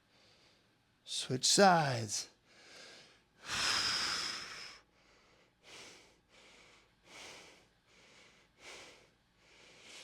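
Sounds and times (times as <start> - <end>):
man breathing: 2.4 - 10.0.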